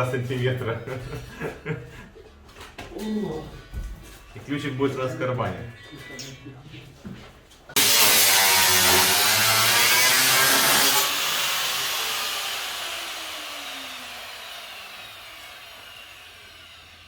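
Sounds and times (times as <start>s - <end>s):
power tool whining down: 7.8s - 17.0s.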